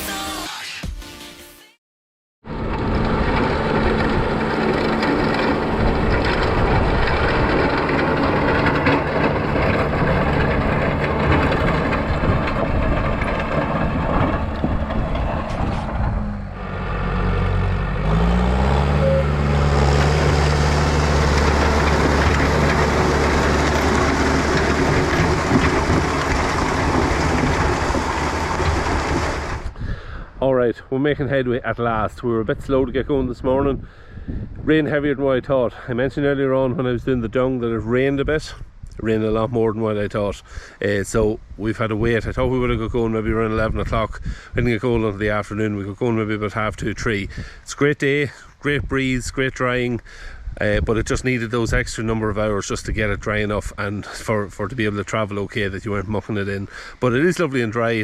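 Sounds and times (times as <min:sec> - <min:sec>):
tractor engine running: 0:02.4 - 0:29.8, 0:48.0 - 0:58.0.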